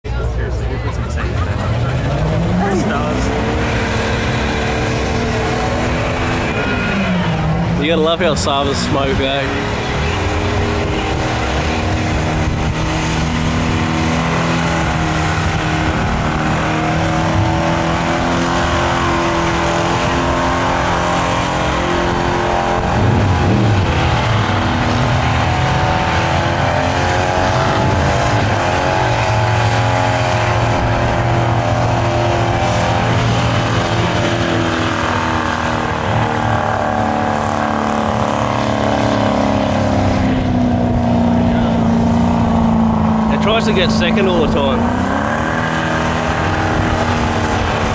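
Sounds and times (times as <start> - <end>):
car engine revving high: 0.1 - 47.9.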